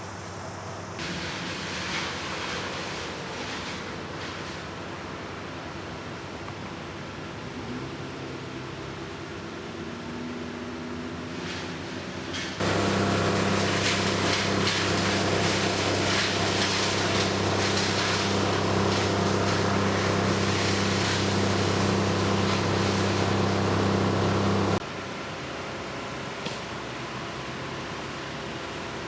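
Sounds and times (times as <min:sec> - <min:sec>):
loud machine hum with rushing: 0:07.4 - 0:29.0.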